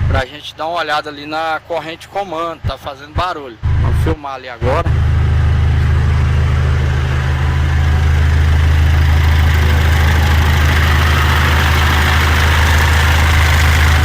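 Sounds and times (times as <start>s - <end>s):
diesel engine idling: 0.0s - 0.6s, 3.6s - 14.0s
hissing rattle from engine: 5.6s - 14.0s.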